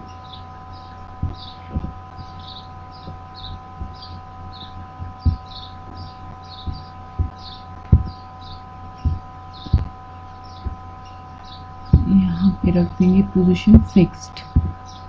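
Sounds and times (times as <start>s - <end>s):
small birds chirping: 0.0s - 15.0s
steady electrical hum: 0.0s - 15.0s
low thuds: 1.2s - 2.4s, 3.0s - 8.2s, 9.0s - 9.9s, 10.6s - 10.9s, 11.9s - 12.8s, 13.7s - 14.8s.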